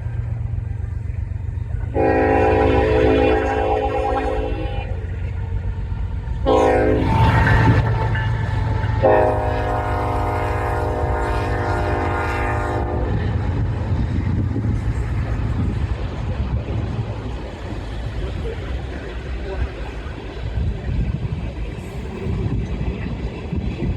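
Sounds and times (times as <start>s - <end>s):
passing train rumble: 0.0s - 23.9s
train horn blasts: 1.8s - 5.3s, 6.4s - 13.6s.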